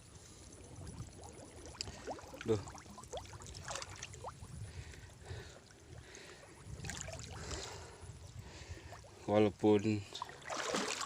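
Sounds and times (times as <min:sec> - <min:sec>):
water drips and trickles: 0:00.2 - 0:11.0
muddy water splashing: 0:00.6 - 0:09.3, 0:10.0 - 0:11.0.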